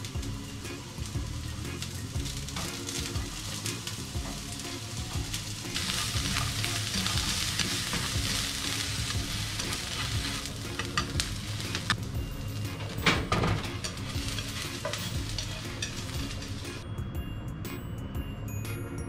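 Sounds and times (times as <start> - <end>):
onion sizzling in frying pan: 0.0 - 16.9
chopsticks tapping and scraping pan: 2.5 - 12.0, 12.8 - 16.8.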